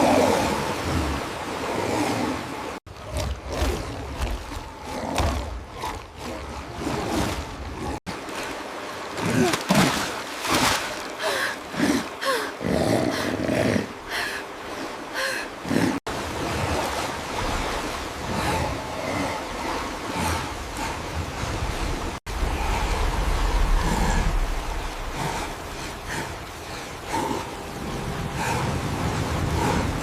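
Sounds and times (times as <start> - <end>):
animal roars and growls: 0.0 - 8.0, 18.2 - 21.2, 22.2 - 30.0
steady rushing noise: 16.2 - 30.0.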